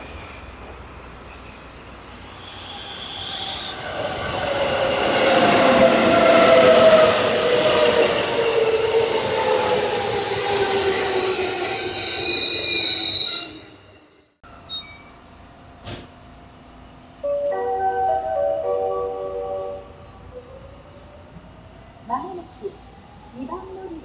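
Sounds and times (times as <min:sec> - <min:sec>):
train wheels rumbling on rails: 0:00.0 - 0:17.2.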